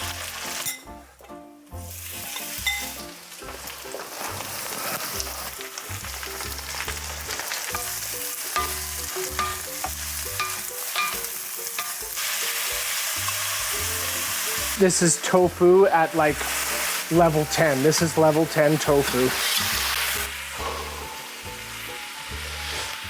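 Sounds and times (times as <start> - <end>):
food sizzling in a pan: 0.0 - 1.0, 1.8 - 23.0
utensil scraping a pan: 18.8 - 20.2.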